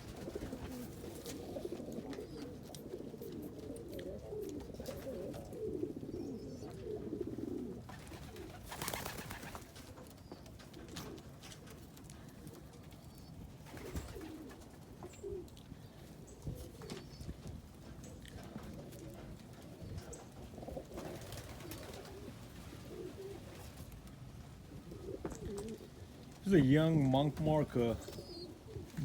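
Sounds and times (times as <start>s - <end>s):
pigeons cooing: 0.0s - 29.0s.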